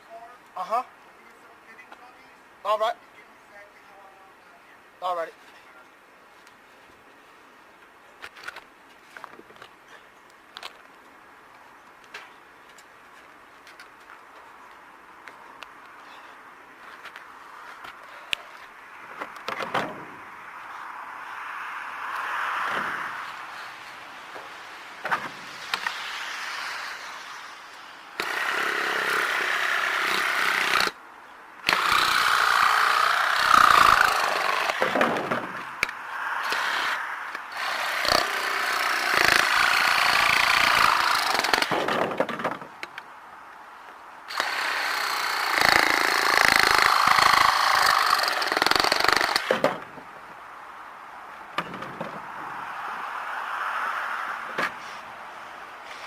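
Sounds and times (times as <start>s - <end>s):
handheld power tool running: 28.2s - 30.9s, 31.7s - 34.8s, 44.3s - 49.5s.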